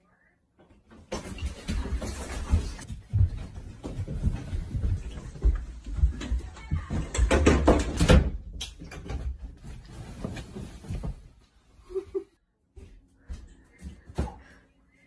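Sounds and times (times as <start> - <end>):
knocks and clatter: 6.0 - 9.8.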